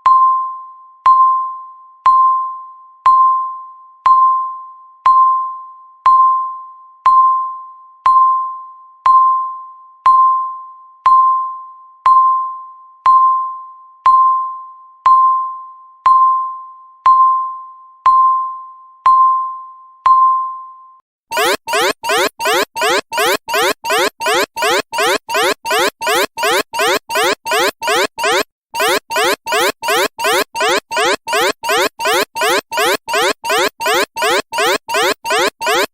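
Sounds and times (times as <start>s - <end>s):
bell-like timer beeps: 21.3s - 35.9s.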